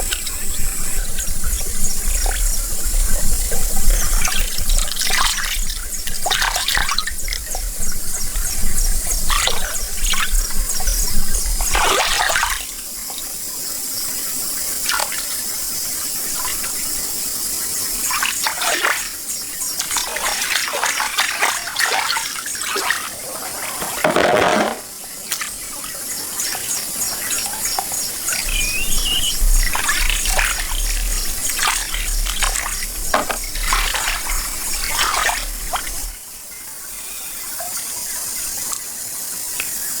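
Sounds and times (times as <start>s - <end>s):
water sloshing and splashing: 19.8s - 36.3s.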